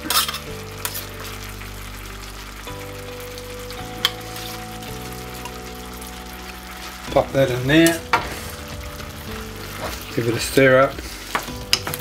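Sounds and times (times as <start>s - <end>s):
food sizzling in a saucepan: 0.0s - 12.0s.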